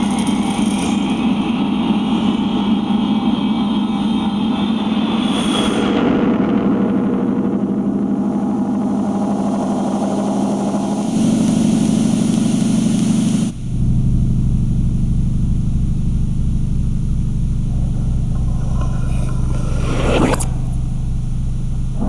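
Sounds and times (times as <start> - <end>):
low throbbing hum: 13.6 - 22.0
low spring drone: 15.6 - 22.0
bright hiss: 17.4 - 22.0.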